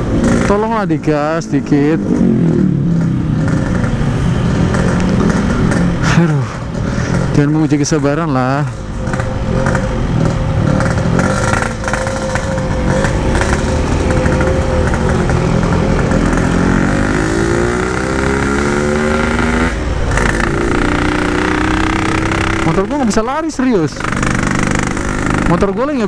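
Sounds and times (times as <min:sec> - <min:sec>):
two-stroke motorcycle engine: 0:00.0 - 0:26.0.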